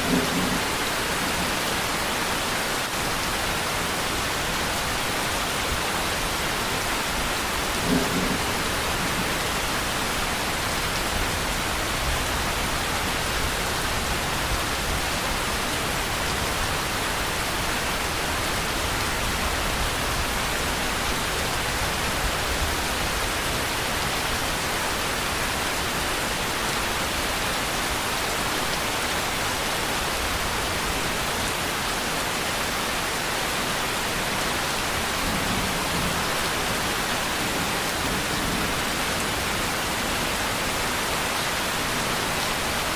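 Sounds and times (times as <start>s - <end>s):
dense rainfall: 0.0s - 42.9s.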